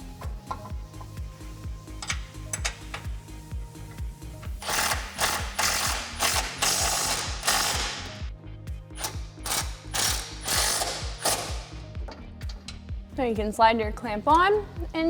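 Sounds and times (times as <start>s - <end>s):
background music with steady beat: 0.0s - 15.0s
ratchet wrench ratcheting: 1.8s - 3.2s, 4.6s - 8.2s, 9.0s - 12.8s.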